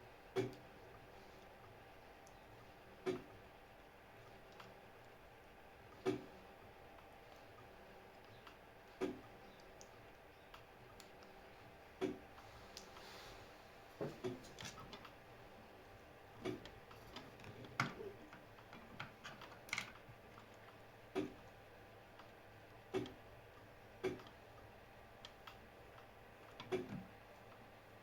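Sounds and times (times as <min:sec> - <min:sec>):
small parts clicking and tapping: 0:14.2 - 0:15.2, 0:16.4 - 0:21.4.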